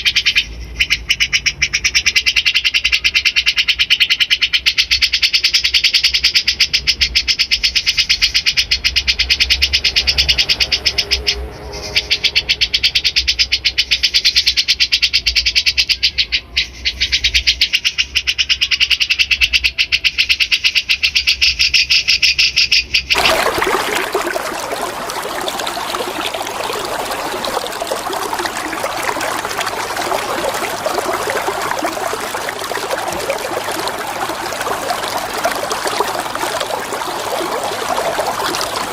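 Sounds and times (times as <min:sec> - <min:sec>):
flowing water: 0:23.1 - 0:38.9.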